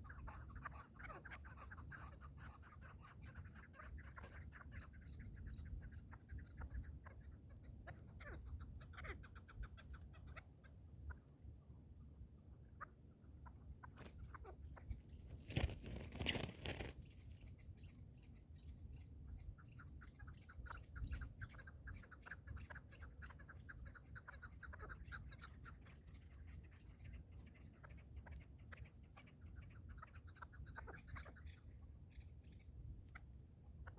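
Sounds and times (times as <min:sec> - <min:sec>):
rustling noise: 0:15.0 - 0:17.4.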